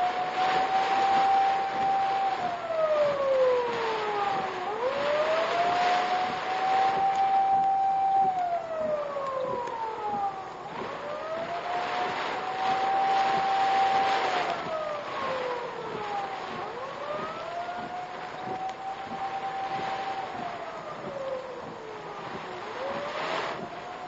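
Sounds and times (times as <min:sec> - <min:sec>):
emergency vehicle siren wailing: 0:00.0 - 0:24.0
steady rushing noise: 0:00.0 - 0:24.0.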